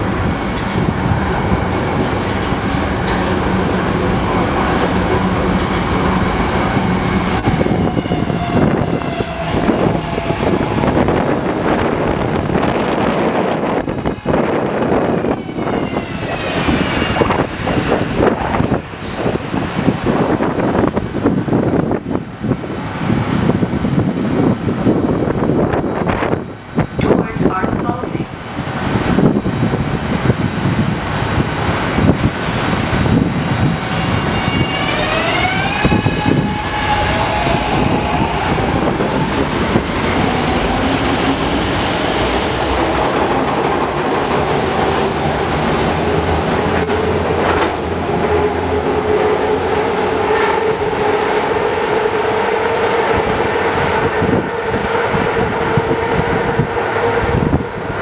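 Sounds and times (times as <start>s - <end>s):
train wheels rumbling on track: 0.0s - 58.0s
train propulsion whine: 28.3s - 58.0s.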